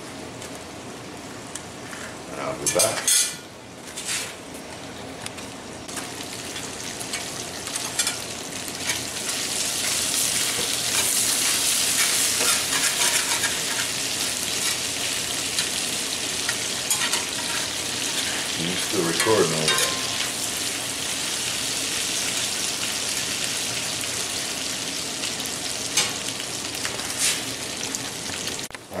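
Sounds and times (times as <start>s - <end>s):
bacon and potatoes sizzling: 5.7s - 29.0s
spatula scraping a pan: 9.8s - 14.0s, 16.5s - 18.6s.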